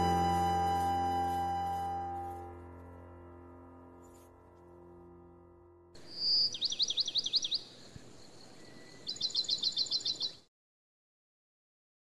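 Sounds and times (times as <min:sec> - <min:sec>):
held song chord: 0:00.0 - 0:05.9
songbird singing: 0:06.0 - 0:10.5.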